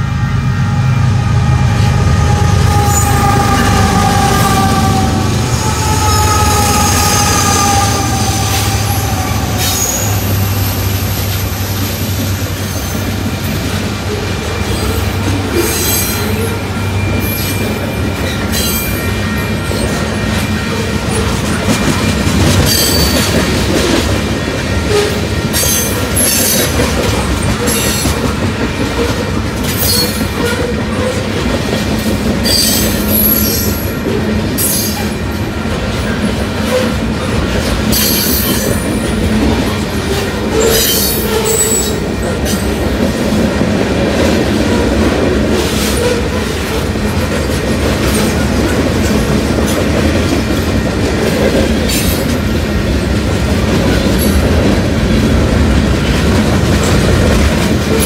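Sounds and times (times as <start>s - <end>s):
freight train wheels rumbling: 0.0s - 58.0s
high-pitched wheel squeals: 0.8s - 13.1s, 14.2s - 21.3s, 40.0s - 42.6s.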